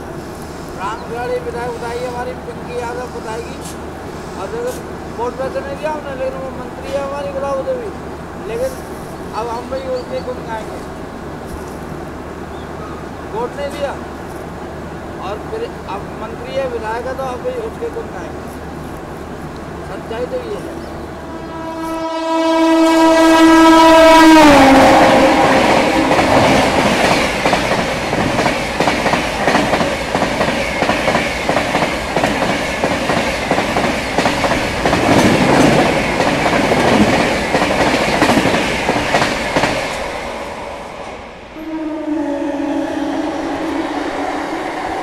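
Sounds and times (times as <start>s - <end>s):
train coaches rushing and clattering: 0.0s - 22.0s, 23.8s - 41.8s
locomotive horn: 21.2s - 27.0s, 41.6s - 45.0s.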